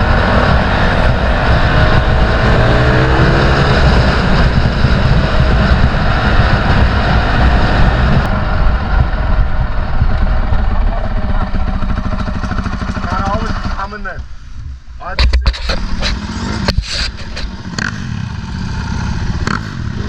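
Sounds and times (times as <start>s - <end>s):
dirt bike engine running: 0.0s - 20.0s
wind rumble on microphone: 0.0s - 20.0s.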